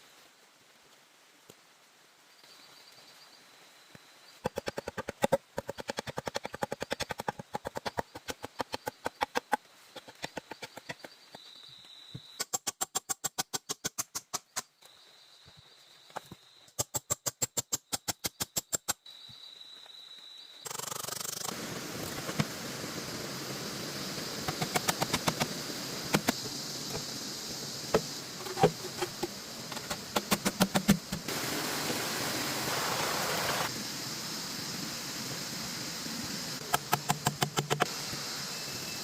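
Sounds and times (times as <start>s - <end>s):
rapid sharp knocks: 28.0s - 31.3s, 36.7s - 37.9s.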